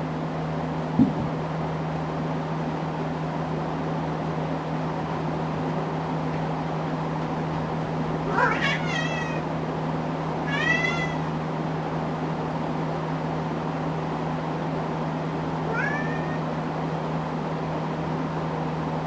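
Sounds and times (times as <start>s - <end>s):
ceiling fan humming: 0.0s - 19.0s
cat meowing: 8.3s - 9.5s, 10.5s - 11.3s, 15.7s - 16.4s.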